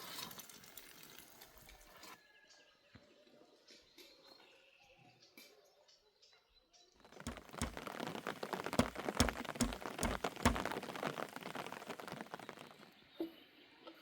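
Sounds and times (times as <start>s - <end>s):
rain pattering: 0.0s - 1.7s, 7.1s - 13.0s
heavy drops knocking on surface: 7.2s - 11.2s.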